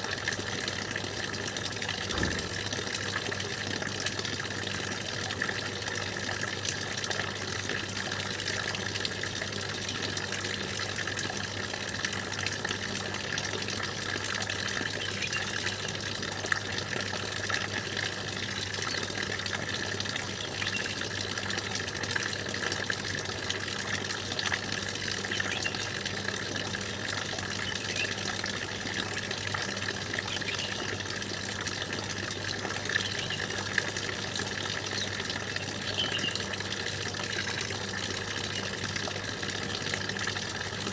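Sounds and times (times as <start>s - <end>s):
faint bird chirps: 30.3s - 30.9s, 35.0s - 36.4s.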